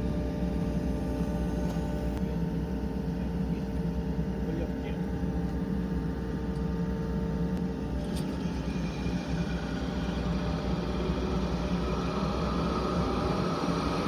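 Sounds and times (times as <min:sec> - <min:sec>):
excavator diesel engine humming: 0:07.9 - 0:14.0.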